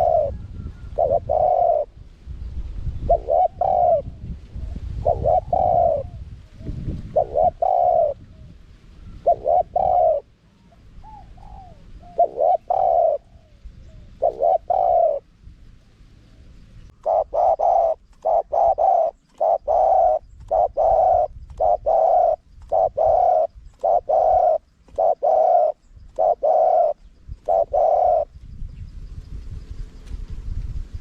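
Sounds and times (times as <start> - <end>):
dove cooing: 0.0 - 2.0, 3.0 - 15.3, 16.3 - 28.4
faint low rumble: 0.0 - 18.2.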